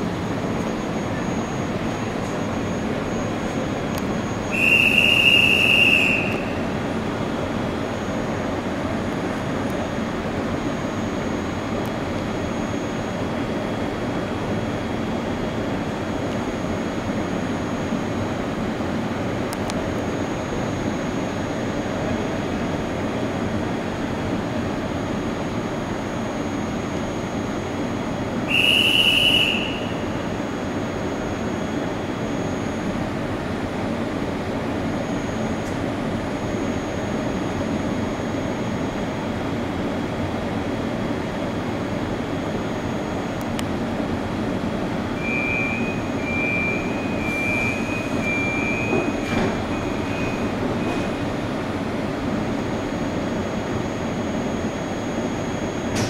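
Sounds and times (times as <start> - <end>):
locomotive mechanical hum: 0.0 - 56.0
high-pitched train whistle: 4.3 - 6.7, 28.5 - 30.3, 45.2 - 51.1.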